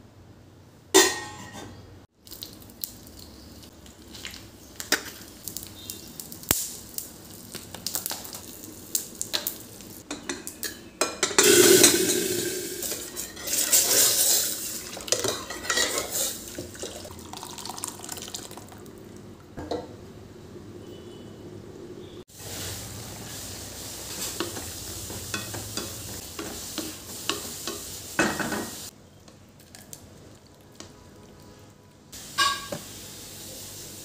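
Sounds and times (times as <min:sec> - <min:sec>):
utensils clinking and scraping cookware: 0:01.0 - 0:01.8, 0:09.4 - 0:17.1, 0:24.0 - 0:28.9, 0:32.4 - 0:32.9
food sizzling in hot pan: 0:04.1 - 0:18.0, 0:22.3 - 0:29.0, 0:32.1 - 0:34.0.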